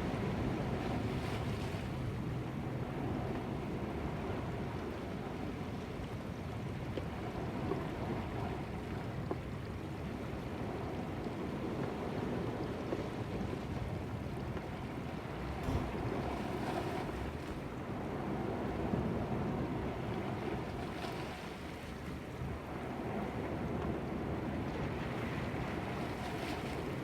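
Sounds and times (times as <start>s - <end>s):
wind buffeting microphone: 15.4s - 19.8s
sea surf washing against rocks: 15.5s - 19.5s.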